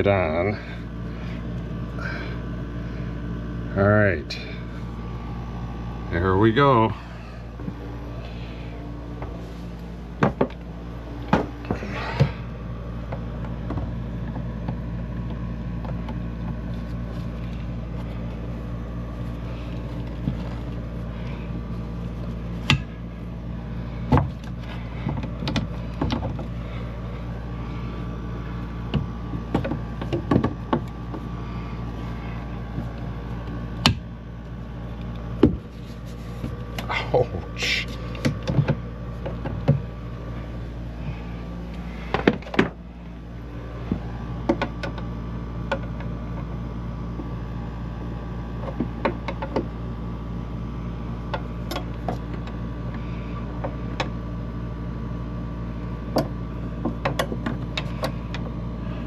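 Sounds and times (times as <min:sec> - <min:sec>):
steady low hum: 0:00.0 - 0:59.0
knocks and clicks on plastic pipe: 0:28.9 - 0:31.2, 0:48.6 - 0:49.7.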